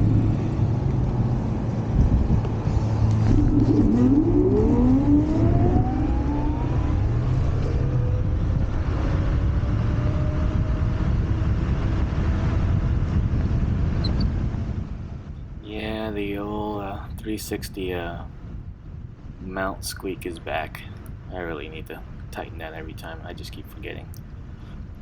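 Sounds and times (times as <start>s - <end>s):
wind rushing over microphone: 0.0s - 25.0s
electric scooter motor whine: 2.0s - 14.4s.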